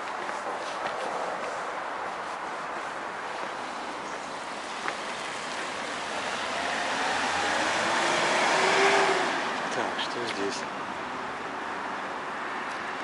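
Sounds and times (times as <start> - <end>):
tyre noise of road traffic: 0.0 - 13.0
passing vehicle engine: 4.6 - 10.6.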